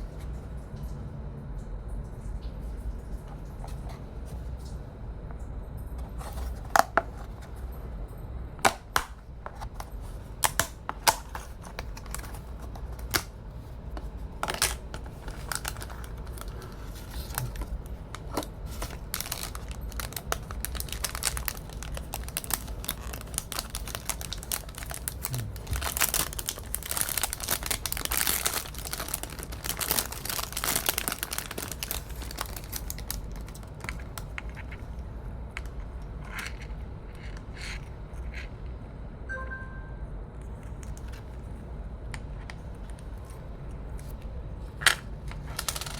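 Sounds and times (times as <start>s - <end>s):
packaging clicks and taps: 8.6s - 13.3s
packaging crinkling and tearing: 8.7s - 35.0s, 44.0s - 45.9s.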